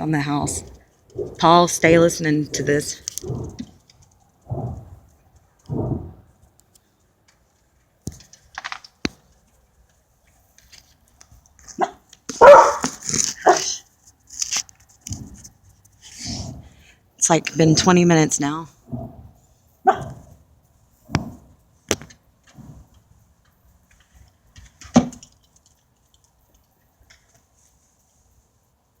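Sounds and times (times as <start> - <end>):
rumbling noise in the sky: 0.4 - 6.6
dog barking: 11.8 - 12.9, 19.8 - 20.3.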